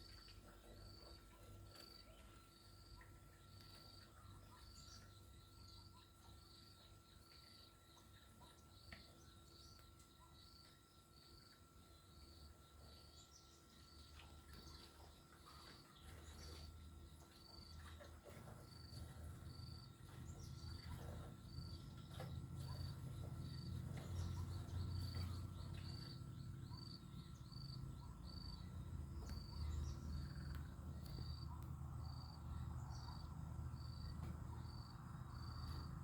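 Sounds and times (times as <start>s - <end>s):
cricket chirping: 0.0s - 36.0s.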